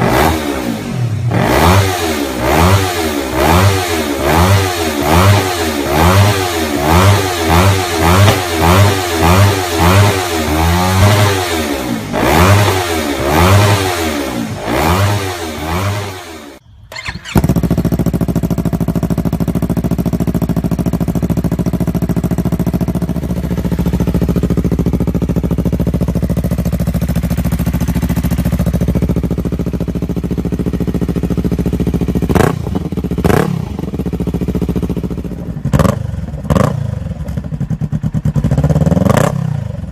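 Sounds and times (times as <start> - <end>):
motorcycle engine revving: 0.0 - 39.9
motorcycle engine idling: 2.3 - 39.9.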